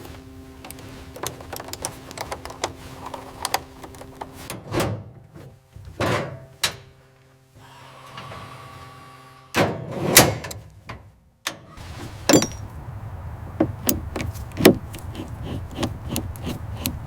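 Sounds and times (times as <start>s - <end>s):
metal clanks and knocks: 12.3s - 12.7s.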